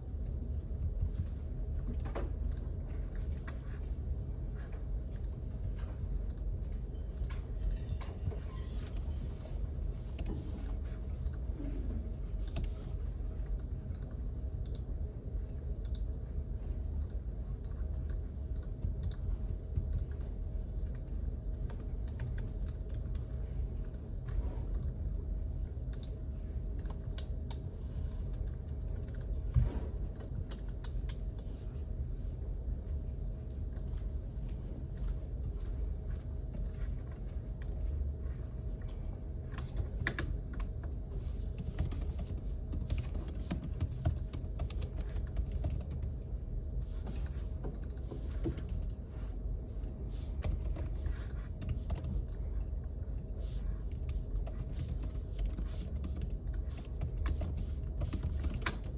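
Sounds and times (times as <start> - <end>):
typing on computer keyboard: 39.6 - 46.2, 50.4 - 52.4, 53.9 - 58.9.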